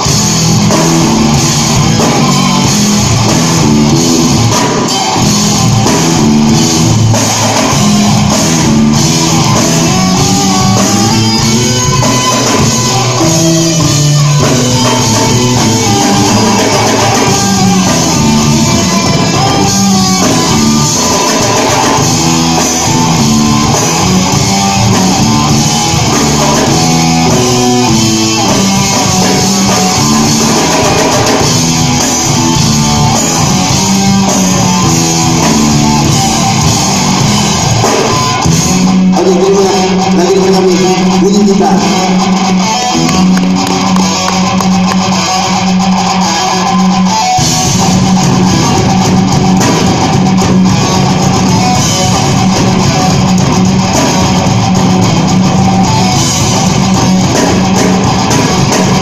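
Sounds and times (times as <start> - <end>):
rock band playing: 0.0 - 59.0.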